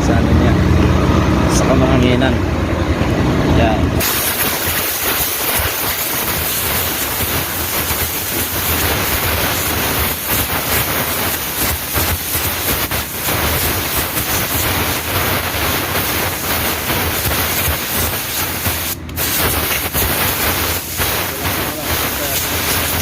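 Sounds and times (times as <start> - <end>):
compressed air blowgun hissing: 4.0 - 23.0.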